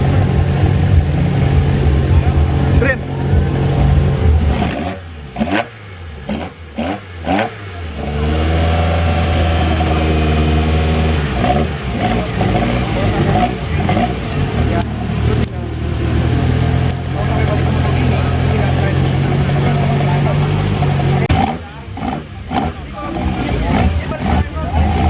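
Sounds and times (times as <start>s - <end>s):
car engine revving and idling: 0.0s - 25.0s.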